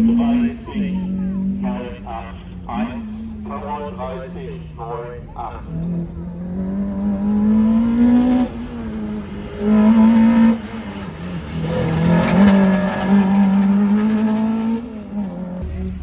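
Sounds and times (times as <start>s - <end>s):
car engine revving hard: 5.5s - 16.0s.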